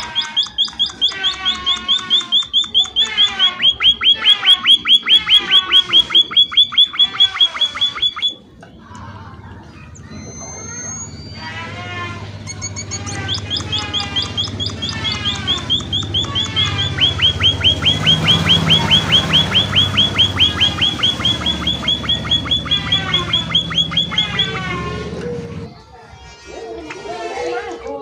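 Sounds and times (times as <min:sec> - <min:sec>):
birds chirping: 0:00.0 - 0:26.3.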